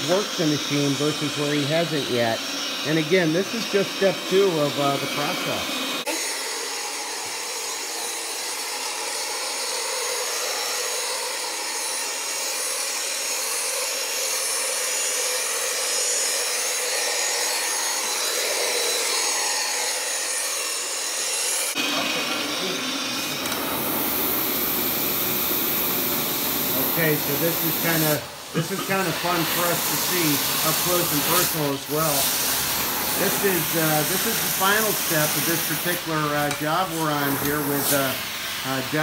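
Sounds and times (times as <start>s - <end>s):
extraction equipment hiss: 0.0s - 6.2s, 21.7s - 39.0s
carpet brushing machine motor: 0.0s - 39.0s.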